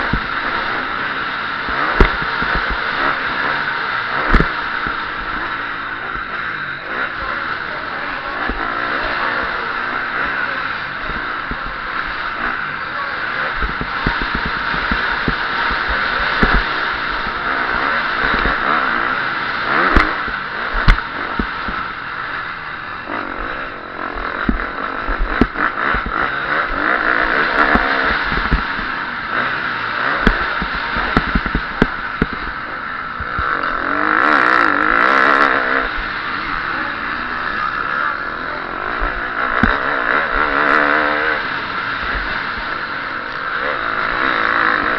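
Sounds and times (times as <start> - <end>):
motocross engine revving: 0.0 - 44.9
sharp knocks and clatter: 1.7 - 3.2, 4.1 - 6.3, 13.5 - 18.6, 19.7 - 21.9, 24.2 - 29.0, 30.1 - 32.6.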